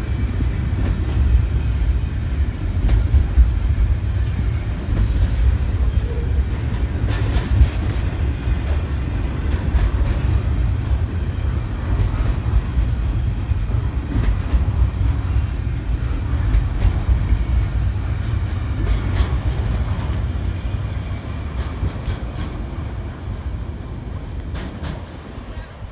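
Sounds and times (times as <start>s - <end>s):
freight train low rumble: 0.0s - 25.9s.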